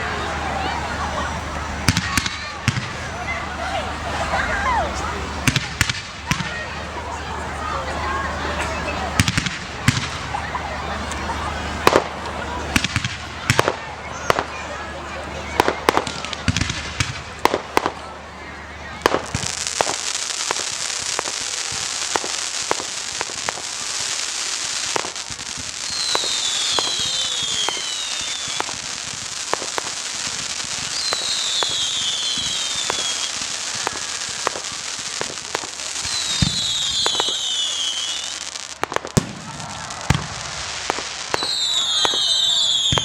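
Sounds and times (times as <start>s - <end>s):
heavy fireworks booms: 0.0s - 18.2s, 18.9s - 43.0s
fireworks crackling hiss: 0.0s - 43.0s
fireworks pops and bangs: 1.8s - 3.1s, 5.0s - 6.8s, 8.6s - 14.7s, 15.4s - 18.1s, 19.0s - 43.0s
falling firework whistles: 19.0s - 43.0s.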